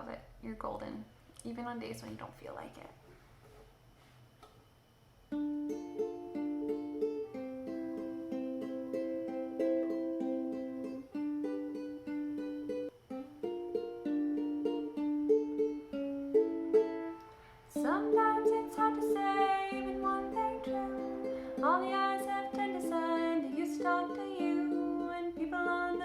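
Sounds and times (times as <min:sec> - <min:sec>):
plucked string instrument: 0:05.3 - 0:26.0.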